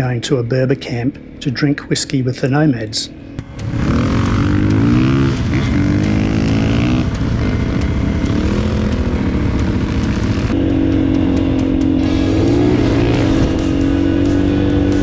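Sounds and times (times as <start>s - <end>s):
motorcycle engine revving: 3.1s - 15.0s.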